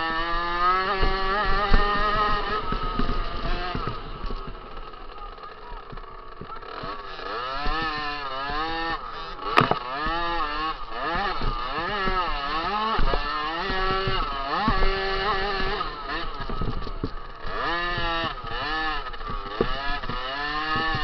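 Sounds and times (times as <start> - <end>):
motocross bike engine revving: 0.0 - 21.0
sharp knocks: 5.9 - 21.0.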